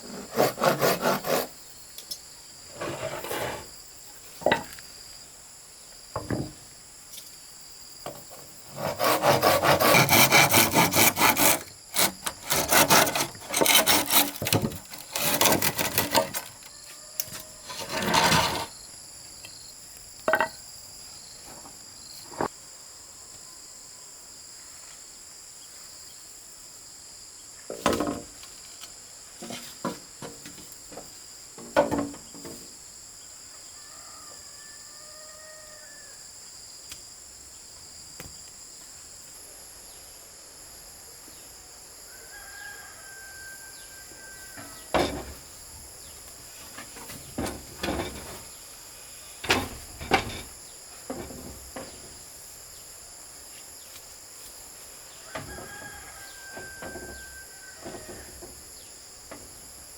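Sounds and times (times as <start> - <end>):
hand saw cutting: 0.0 - 1.6, 8.7 - 16.7, 17.3 - 18.7
insects chirring: 0.0 - 59.9.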